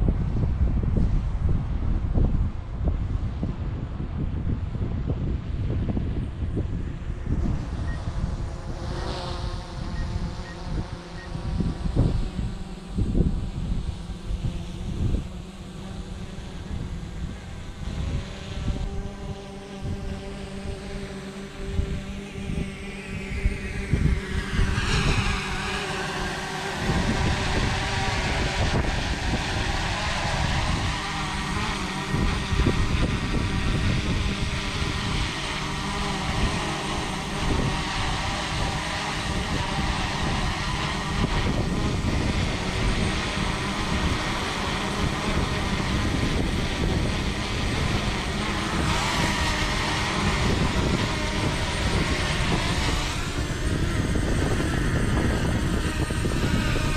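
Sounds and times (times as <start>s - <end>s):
wind rumble on microphone: 0.0s - 56.9s
drone propellers whining: 5.4s - 56.9s.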